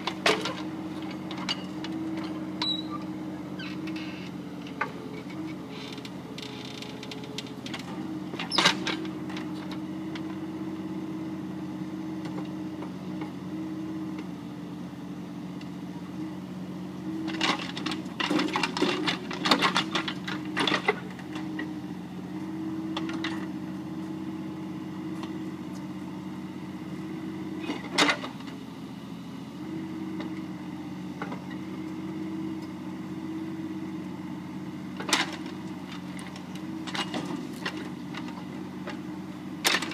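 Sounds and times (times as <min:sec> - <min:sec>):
mini excavator engine running: 0:00.0 - 0:39.9.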